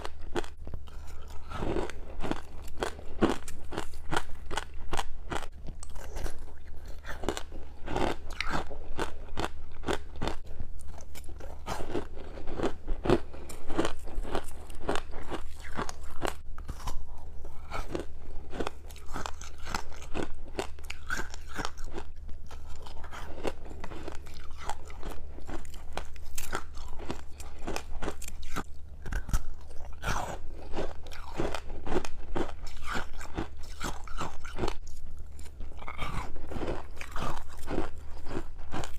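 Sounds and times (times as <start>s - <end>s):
frost crunching while chewed: 0.0s - 38.9s.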